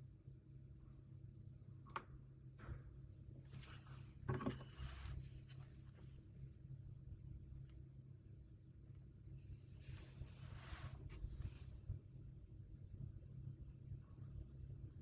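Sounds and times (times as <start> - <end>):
paper rustling scratch: 3.5 - 6.2, 9.8 - 11.9.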